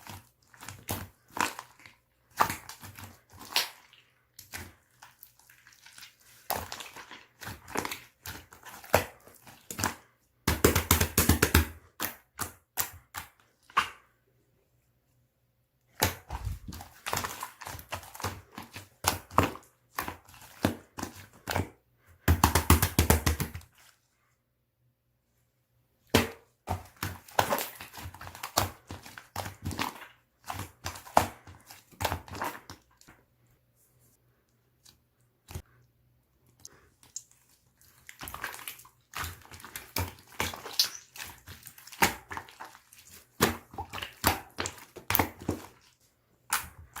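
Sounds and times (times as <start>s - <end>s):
slime squishing wet clicks: 36.5s - 47.0s
slime crackling: 36.7s - 46.0s.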